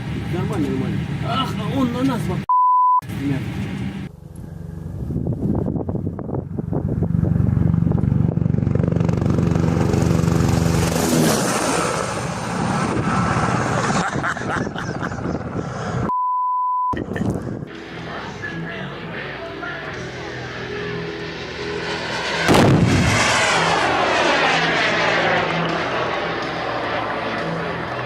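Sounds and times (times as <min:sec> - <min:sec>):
censor bleep: 0:02.5 - 0:03.0, 0:16.1 - 0:17.0
loud engine running: 0:03.0 - 0:13.9, 0:17.6 - 0:28.0
heavy rushing noise: 0:17.2 - 0:28.0.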